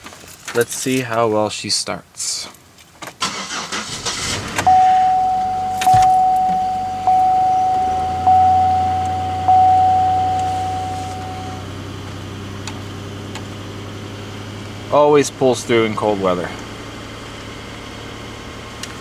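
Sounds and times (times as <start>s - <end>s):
car engine idling: 3.2s - 19.0s
dashboard warning chime dinging: 4.6s - 11.7s.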